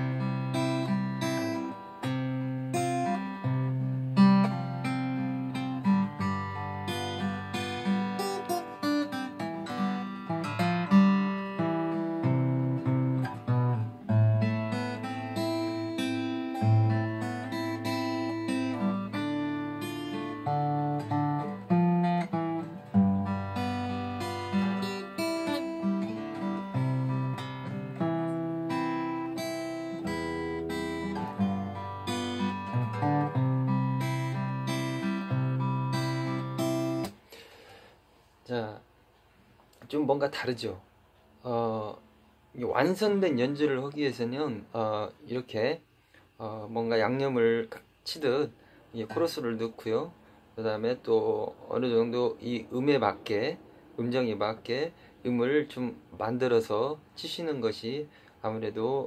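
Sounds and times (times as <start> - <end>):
solo acoustic guitar: 0.0 - 37.4.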